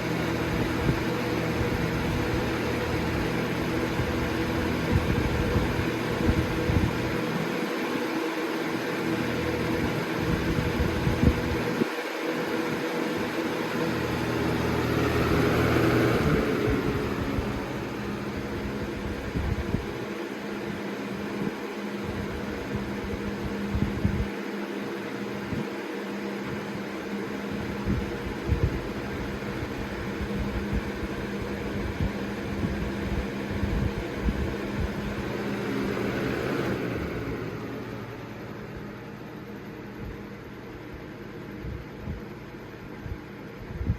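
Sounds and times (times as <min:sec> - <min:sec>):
low motor hum: 0:00.0 - 0:24.3, 0:26.5 - 0:43.9
box fan running: 0:00.0 - 0:43.9
wind buffeting on microphone: 0:00.5 - 0:07.5, 0:09.8 - 0:11.9, 0:15.2 - 0:20.1, 0:22.1 - 0:24.3, 0:27.6 - 0:35.6, 0:43.6 - 0:43.9.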